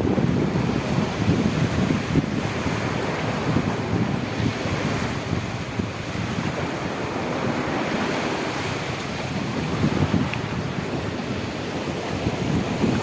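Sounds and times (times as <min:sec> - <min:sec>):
sea surf washing in: 0:00.0 - 0:13.0
wind buffeting microphone: 0:00.0 - 0:13.0.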